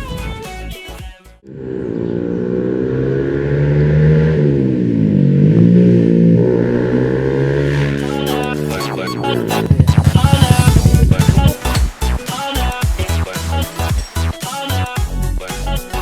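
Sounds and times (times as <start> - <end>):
motorcycle engine revving: 1.5 - 11.9.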